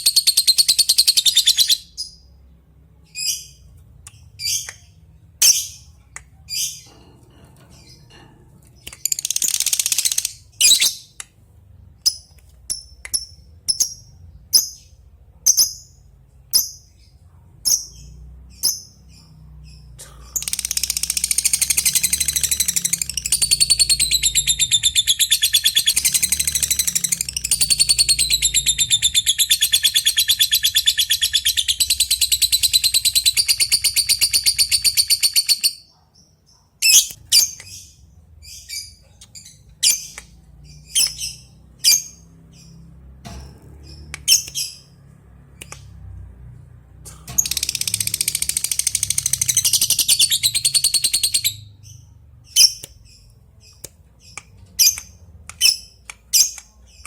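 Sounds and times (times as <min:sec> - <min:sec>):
lovebird chirping and trilling: 0:00.0 - 0:02.3, 0:04.3 - 0:05.9, 0:08.8 - 0:11.2, 0:20.4 - 0:35.9, 0:36.5 - 0:42.8, 0:43.9 - 0:45.0, 0:47.3 - 0:57.0.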